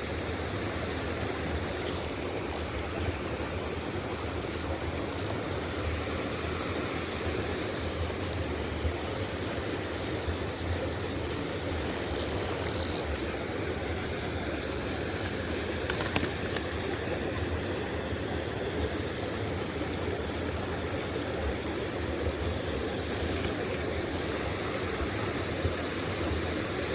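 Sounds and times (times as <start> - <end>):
stream water rushing: 0.0 - 26.9.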